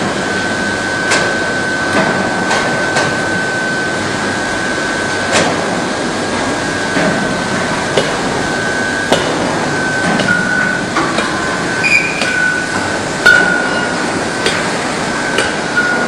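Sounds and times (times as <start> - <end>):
furnace high-pitched whine: 0.0 - 16.0
loud foundry noise: 6.9 - 16.0
sharp metallic knocks: 10.1 - 11.3, 13.2 - 14.7, 15.3 - 16.0.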